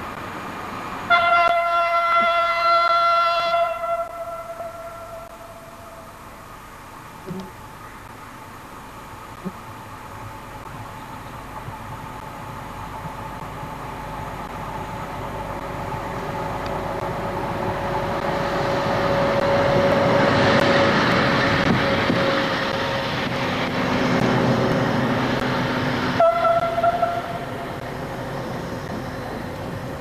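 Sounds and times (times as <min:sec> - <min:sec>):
diesel locomotive passing: 0:00.0 - 0:30.0
train horn blast: 0:01.1 - 0:06.1, 0:26.1 - 0:27.7.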